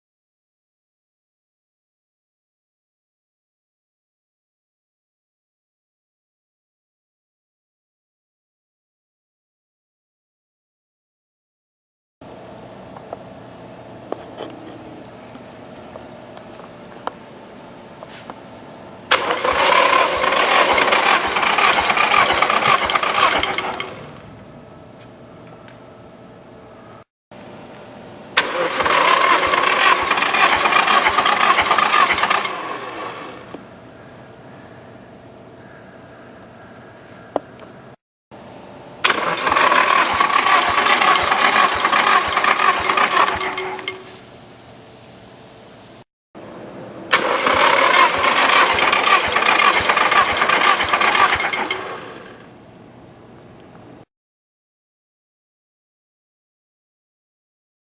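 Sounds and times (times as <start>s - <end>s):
engine cranking on starter motor: 19.1s - 24.2s, 28.4s - 33.6s, 39.0s - 44.2s, 47.1s - 52.5s.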